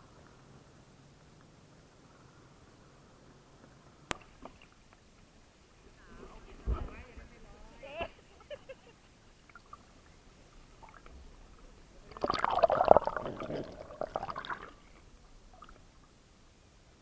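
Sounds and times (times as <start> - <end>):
water splashing and gurgling: 9.4 - 16.1.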